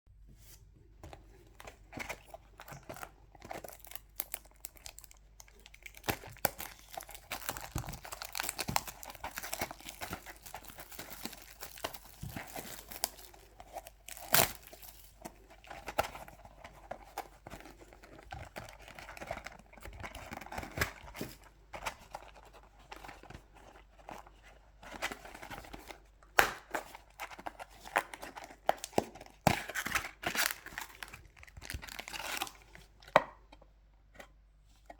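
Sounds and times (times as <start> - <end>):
plastic packaging tearing and crinkling: 3.4 - 15.9, 27.0 - 32.8.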